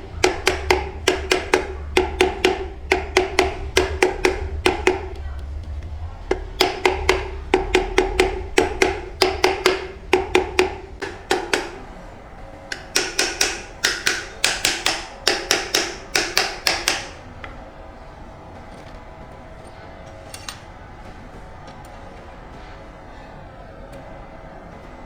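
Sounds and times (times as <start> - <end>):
hammer blows on metal: 0.0 - 18.1.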